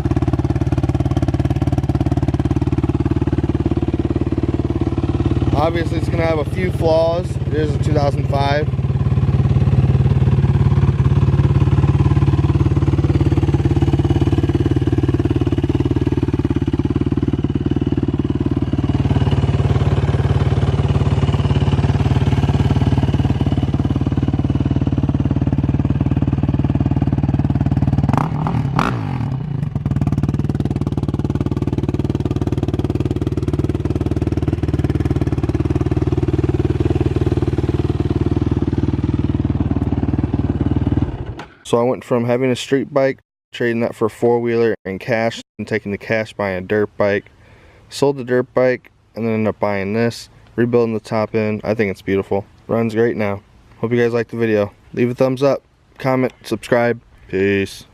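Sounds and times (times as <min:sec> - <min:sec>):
atv engine idling: 0:00.0 - 0:42.6.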